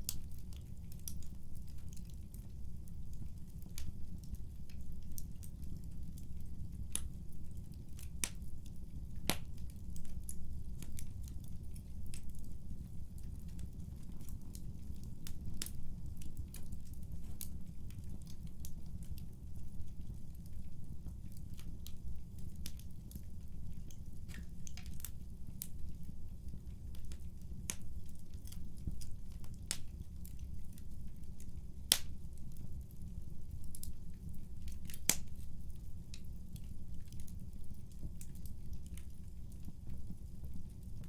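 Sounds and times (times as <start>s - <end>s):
fire pops and snaps: 0.0s - 19.3s, 20.0s - 41.0s
wood fire crackling: 0.0s - 41.0s.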